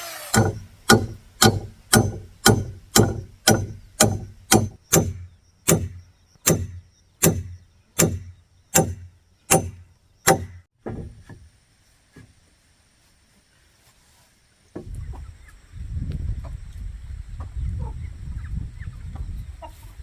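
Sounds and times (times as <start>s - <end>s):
hand tool striking wood: 0.1s - 11.4s.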